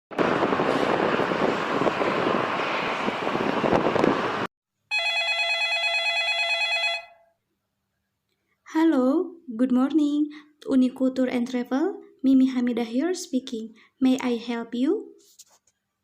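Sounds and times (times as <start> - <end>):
loud rushing noise: 0.1 - 4.5
telephone ringing: 4.9 - 7.3.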